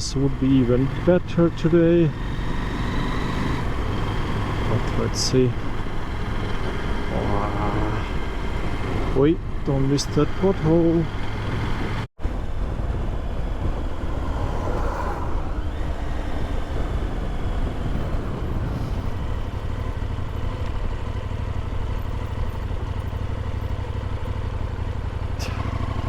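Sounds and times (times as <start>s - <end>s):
motorcycle engine running: 0.0s - 14.5s, 15.6s - 26.0s
road noise: 0.0s - 26.0s
wind noise: 11.3s - 21.1s.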